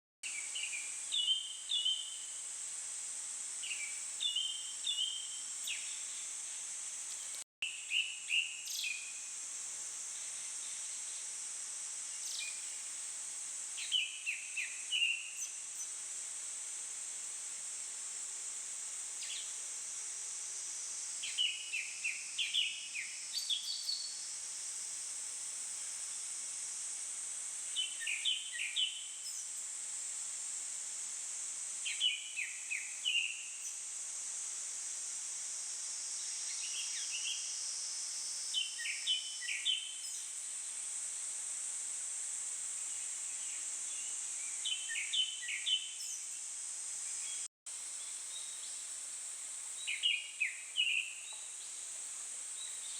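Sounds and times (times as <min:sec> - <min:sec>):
high-pitched insect drone: 0:31.8 - 0:41.7.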